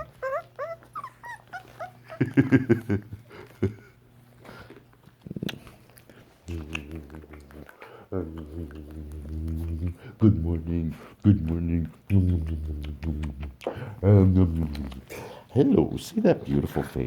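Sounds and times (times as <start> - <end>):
puppy growling and yapping: 0.0 - 2.4
puppies whimpering: 0.0 - 2.5.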